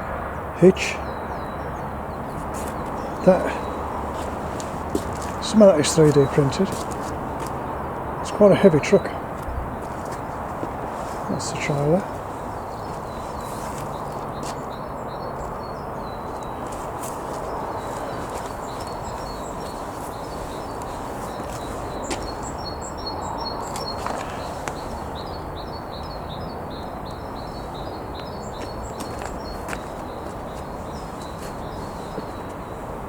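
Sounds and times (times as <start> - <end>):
small birds chirping: 0.0 - 33.0
steady background hiss: 2.4 - 9.2, 10.3 - 14.3.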